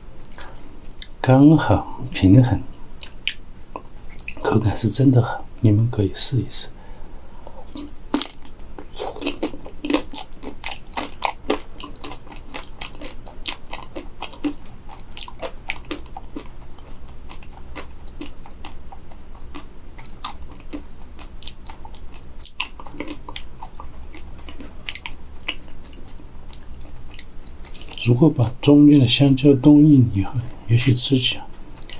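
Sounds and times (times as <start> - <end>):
person chewing crunchy food: 3.0 - 4.4, 7.4 - 28.1.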